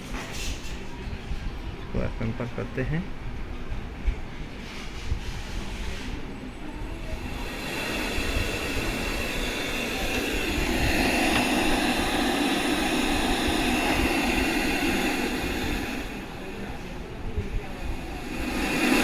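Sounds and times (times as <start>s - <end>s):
radio static hiss: 6.9s - 19.0s.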